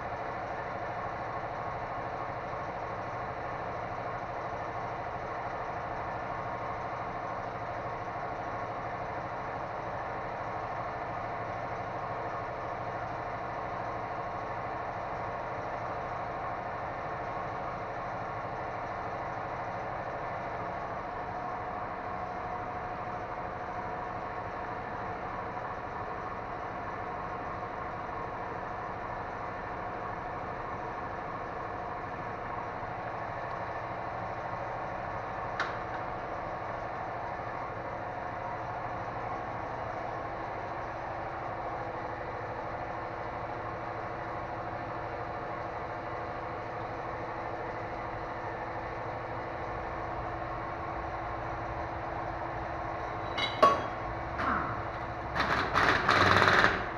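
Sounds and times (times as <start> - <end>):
mechanical running hum: 16.4 - 56.9.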